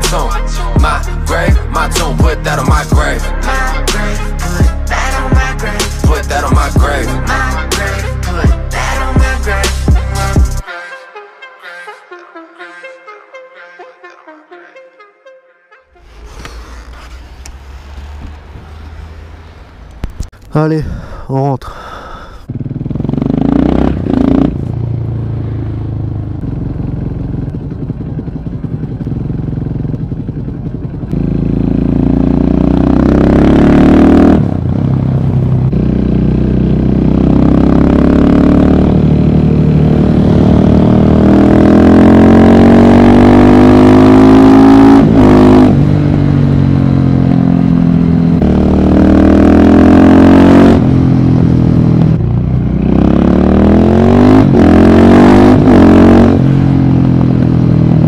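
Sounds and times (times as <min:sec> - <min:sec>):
motorcycle engine accelerating: 0:16.0 - 0:20.5, 0:22.2 - 0:58.0.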